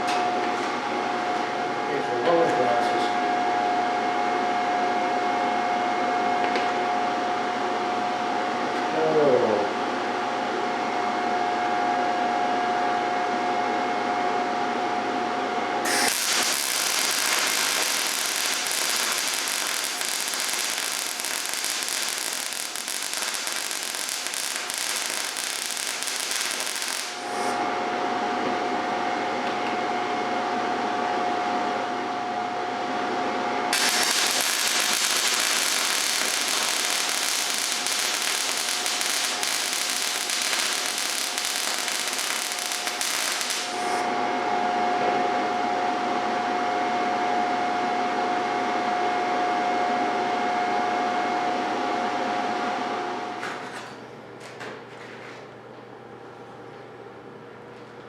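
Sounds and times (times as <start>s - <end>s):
steady hum: 14.8s - 46.7s
welding arc crackling and hissing: 15.8s - 27.6s, 33.7s - 44.1s.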